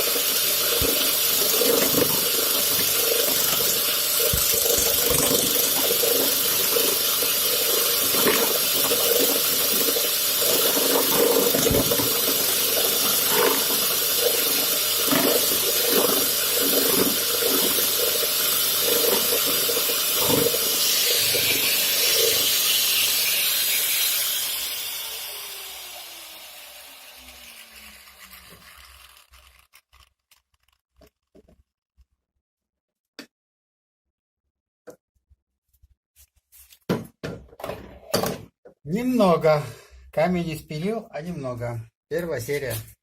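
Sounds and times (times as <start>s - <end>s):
stone grinding spinning steel ball: 0.0s - 31.5s.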